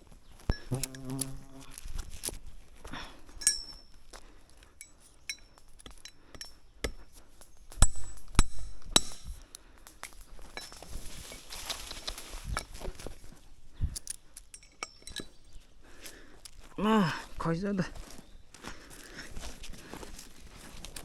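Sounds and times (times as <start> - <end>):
hard objects knocking and clinking: 13.9 - 15.6.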